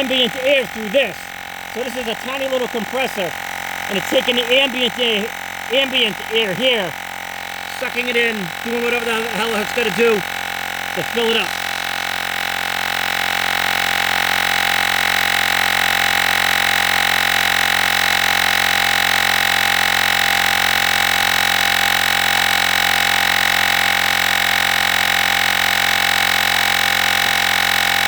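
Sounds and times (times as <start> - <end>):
portable air compressor buzzing: 0.0 - 28.0.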